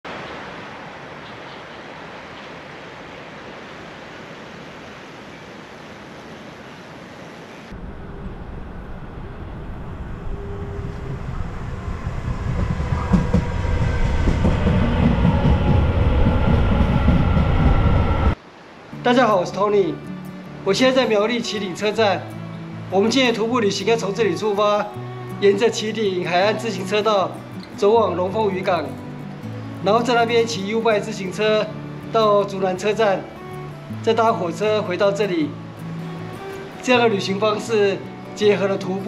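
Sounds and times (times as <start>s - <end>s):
faint high whine: 6.6s - 19.0s
electric train rumble: 7.7s - 18.4s
outdoor hiss: 18.4s - 27.9s, 28.9s - 38.5s.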